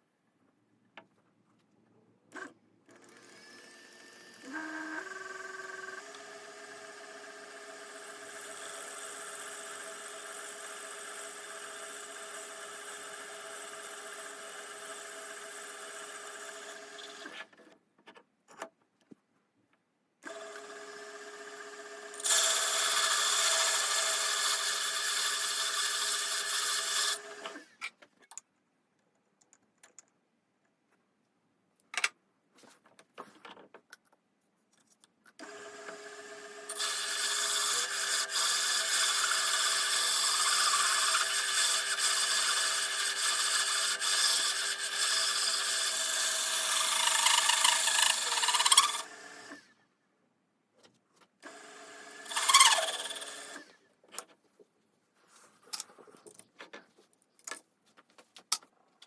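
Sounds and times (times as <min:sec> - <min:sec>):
lathe whining: 0:36.7 - 0:49.7, 0:51.5 - 0:53.8.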